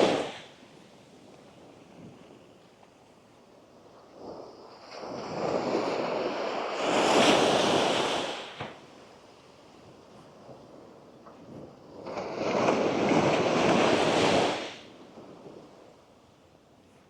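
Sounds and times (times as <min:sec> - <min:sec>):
wave washing up sand: 0:00.0 - 0:00.5, 0:12.0 - 0:14.9.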